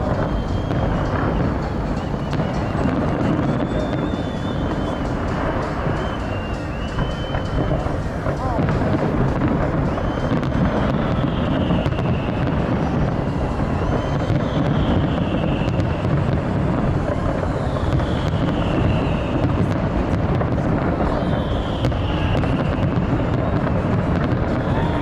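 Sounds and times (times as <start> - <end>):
high falling whistle: 0.0 - 8.7, 9.6 - 16.1
crowd noise: 0.0 - 25.0
wind buffeting microphone: 0.0 - 25.0.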